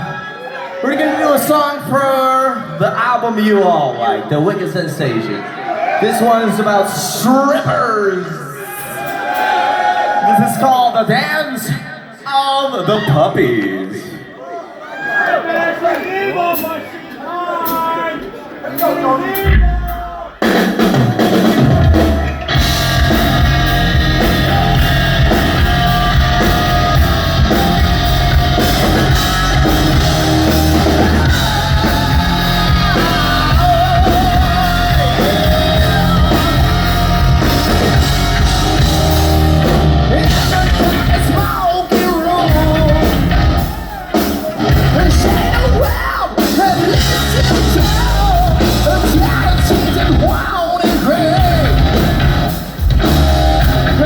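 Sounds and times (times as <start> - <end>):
hard rock band playing: 19.3 - 54.0
person singing: 24.2 - 43.3, 44.7 - 52.3.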